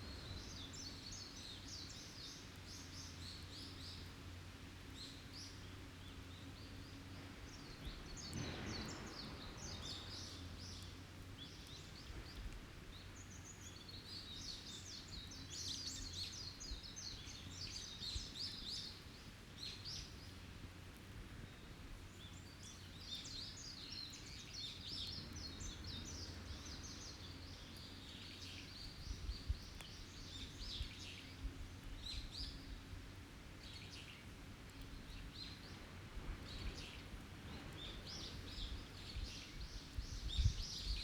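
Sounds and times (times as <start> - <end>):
small birds chirping and twittering: 0.0 - 41.0
wood fire crackling: 4.8 - 40.8.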